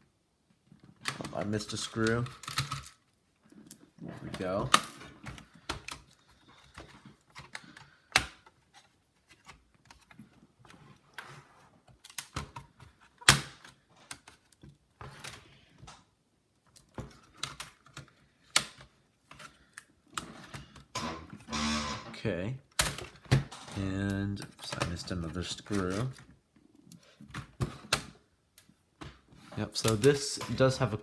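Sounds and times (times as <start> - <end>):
plastic clicks and snaps: 29.8 - 30.8.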